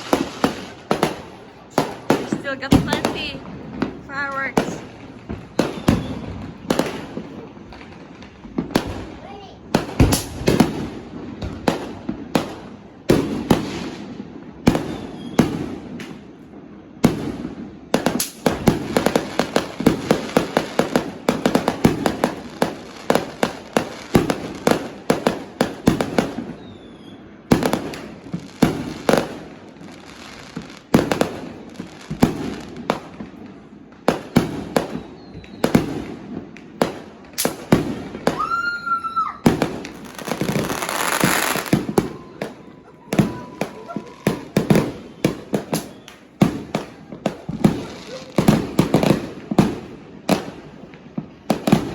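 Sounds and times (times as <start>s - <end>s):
firework bangs: 0.0s - 51.9s
rapid firecracker crackling: 0.0s - 51.9s
firework whistling tone: 5.5s - 7.2s, 14.7s - 15.6s, 26.4s - 27.4s, 34.8s - 35.9s, 38.2s - 46.4s.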